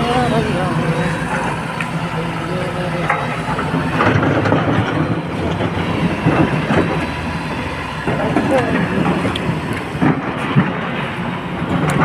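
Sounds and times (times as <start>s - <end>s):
excavator diesel engine running: 0.0s - 12.0s
metallic clattering and knocking: 3.0s - 7.0s.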